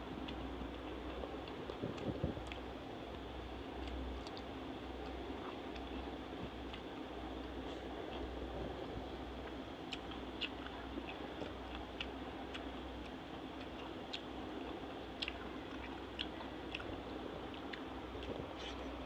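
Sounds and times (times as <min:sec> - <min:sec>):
person chewing: 0:00.2 - 0:02.8, 0:03.8 - 0:19.0.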